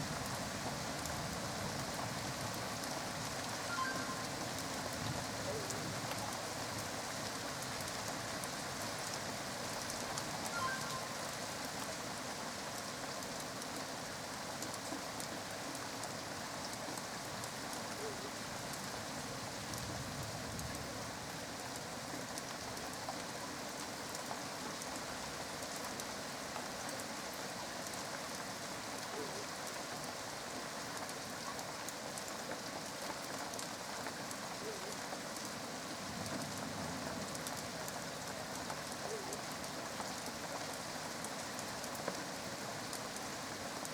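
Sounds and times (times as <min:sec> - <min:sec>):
rain falling: 0:00.0 - 0:43.9
raindrop ticks: 0:00.0 - 0:43.9.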